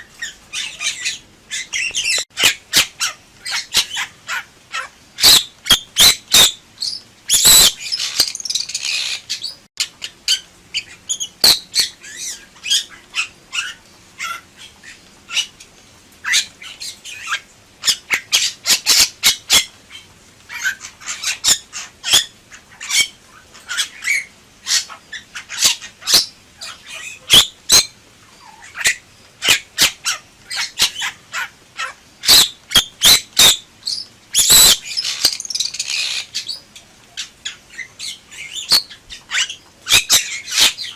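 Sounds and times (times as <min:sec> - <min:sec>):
bird squawking and whistling: 0:05.2 - 0:09.6, 0:10.8 - 0:13.8, 0:27.0 - 0:27.9, 0:28.6 - 0:36.6, 0:37.8 - 0:40.9.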